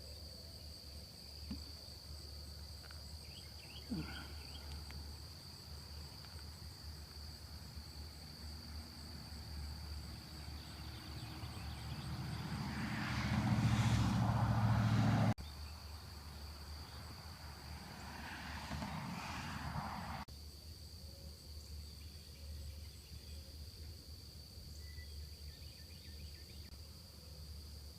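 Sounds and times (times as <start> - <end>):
crickets droning: 0.0 - 27.9
vehicle passing on road: 2.4 - 20.3.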